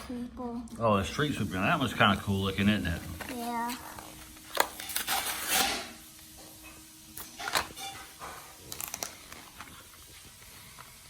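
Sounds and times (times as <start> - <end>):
plastic packaging crinkling: 2.5 - 5.9, 7.2 - 11.0.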